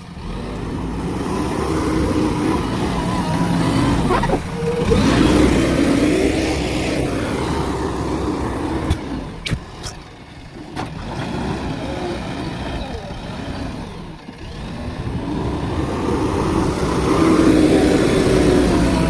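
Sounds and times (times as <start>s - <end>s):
diesel engine under load: 0.0s - 19.0s.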